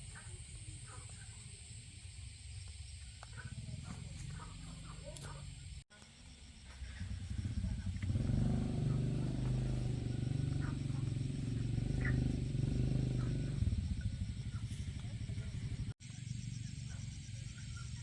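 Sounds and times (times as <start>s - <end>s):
small engine running: 6.5s - 18.0s.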